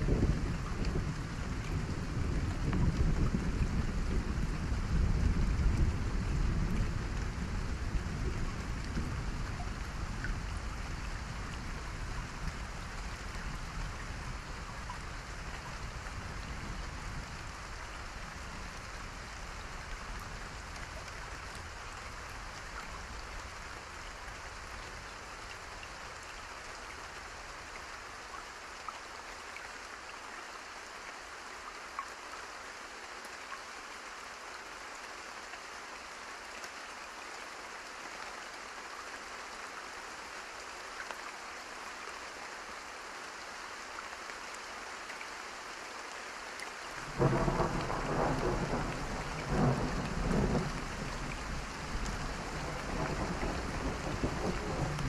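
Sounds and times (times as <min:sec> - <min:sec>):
steady rain falling: 0:00.0 - 0:55.0
faint campfire crackling: 0:46.3 - 0:55.0
low thunder rumble: 0:47.0 - 0:55.0.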